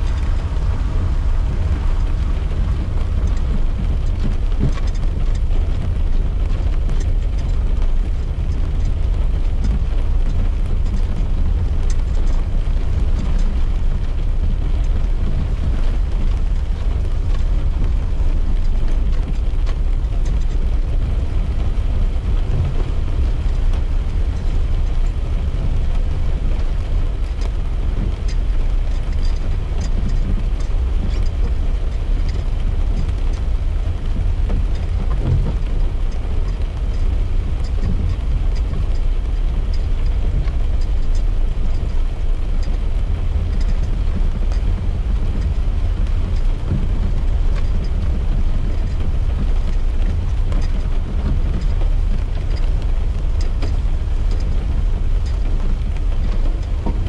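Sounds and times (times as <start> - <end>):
car road and engine rumble: 0.0 - 57.0
rain ticking on glass: 0.0 - 57.0.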